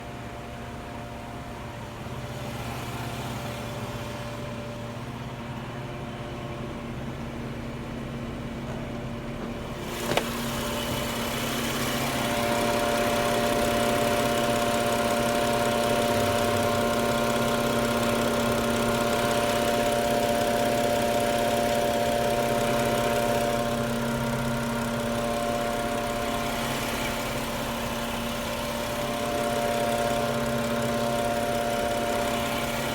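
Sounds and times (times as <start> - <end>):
high machine whine: 9.8 - 32.9
machine humming: 9.9 - 32.9.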